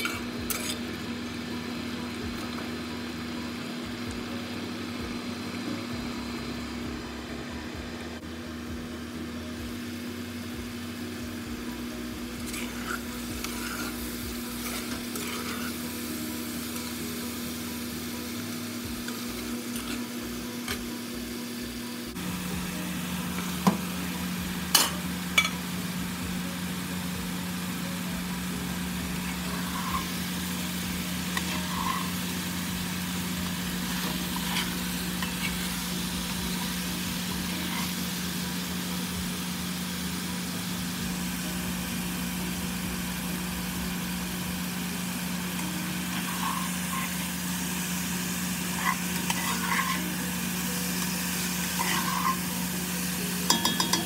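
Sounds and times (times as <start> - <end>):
food sizzling in a pot: 0.0 - 54.0
spatula scraping and knocking pan: 48.8 - 50.2, 51.7 - 52.6.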